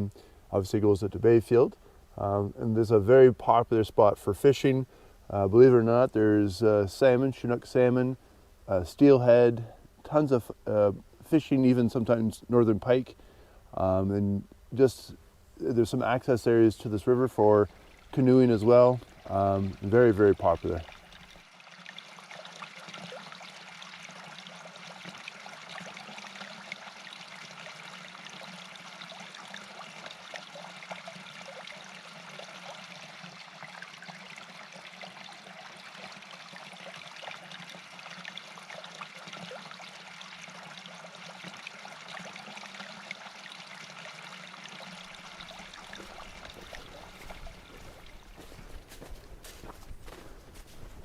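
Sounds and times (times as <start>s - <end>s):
stream flowing: 15.1s - 51.0s.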